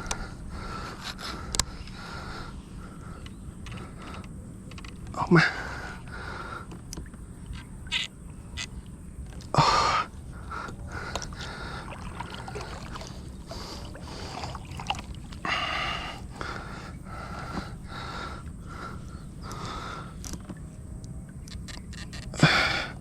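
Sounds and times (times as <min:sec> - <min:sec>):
knocks and clicks on boat: 0:03.1 - 0:05.2, 0:06.6 - 0:09.5, 0:19.5 - 0:22.4.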